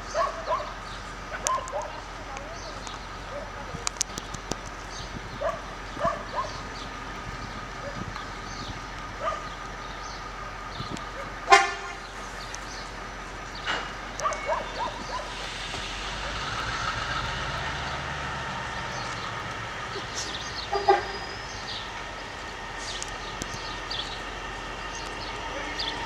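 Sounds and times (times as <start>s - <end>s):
steady low rumble: 0.0s - 26.0s
train horn toots: 11.4s - 12.3s, 13.8s - 22.2s, 24.8s - 26.0s.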